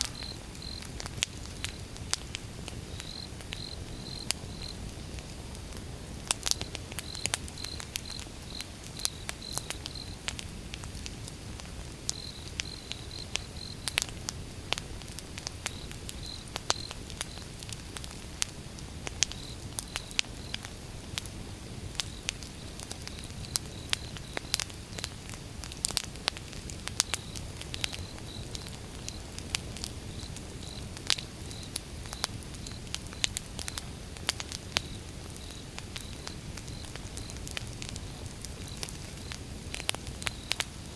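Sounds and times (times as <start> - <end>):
firewood crackling and popping: 0.0 - 40.9
low rumble of fire: 0.0 - 40.9.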